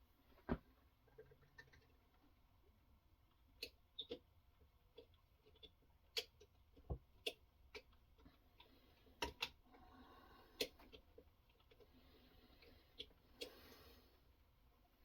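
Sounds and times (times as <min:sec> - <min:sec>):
quiet clicks and taps: 0:03.3 - 0:09.7.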